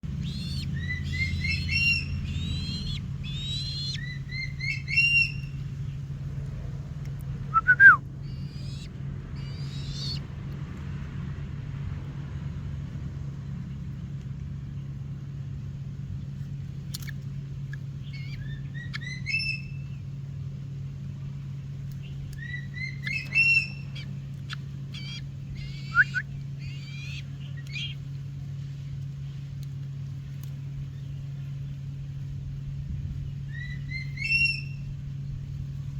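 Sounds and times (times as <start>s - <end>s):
bird chirping: 0.0s - 6.1s, 7.5s - 10.3s, 16.9s - 20.1s, 22.0s - 28.1s, 33.2s - 35.4s
low hum: 0.0s - 35.9s
falling bird call: 0.1s - 5.7s.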